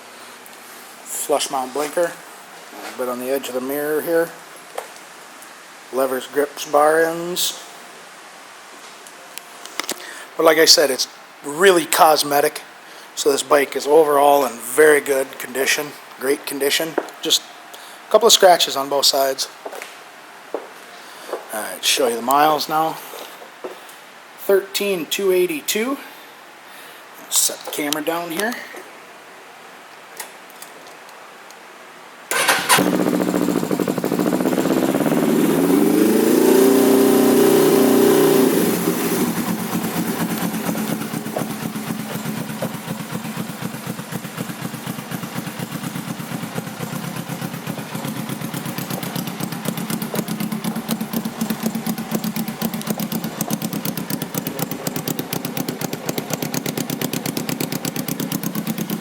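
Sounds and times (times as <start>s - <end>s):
motorcycle engine starting and idling: 32.3s - 59.0s.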